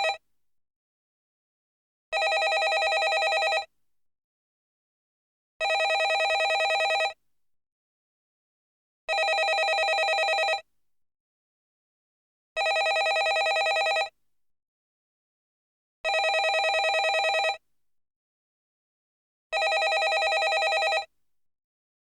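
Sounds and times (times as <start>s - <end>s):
telephone bell ringing: 0.0s - 0.2s, 2.2s - 3.7s, 5.6s - 7.2s, 9.1s - 10.6s, 12.6s - 14.1s, 16.1s - 17.6s, 19.6s - 21.1s.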